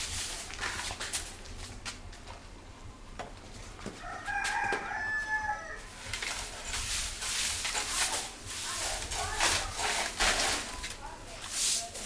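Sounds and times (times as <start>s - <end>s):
rooster crowing: 4.0s - 5.9s
scratchy strokes: 6.3s - 10.8s.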